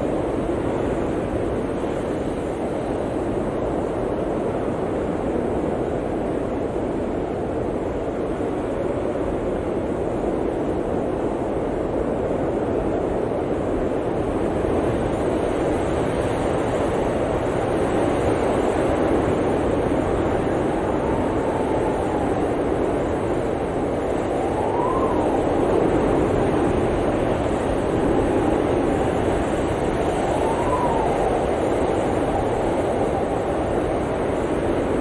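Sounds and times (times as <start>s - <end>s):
blizzard wind blowing: 0.0s - 35.0s
faint wind whistle: 16.6s - 35.0s.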